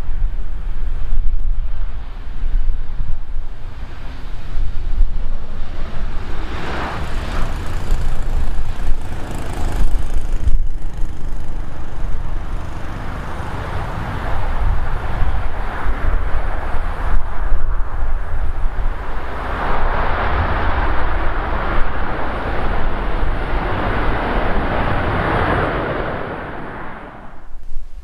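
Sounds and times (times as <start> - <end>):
wind buffeting microphone: 0.0 - 28.0
aircraft engines rushing: 0.3 - 27.7.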